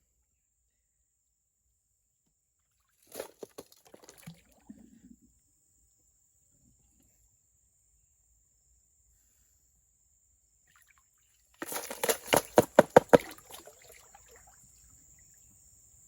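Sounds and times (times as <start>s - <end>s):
water sloshing and splashing: 2.8s - 4.8s, 11.6s - 14.9s
sharp knocks: 11.6s - 13.3s.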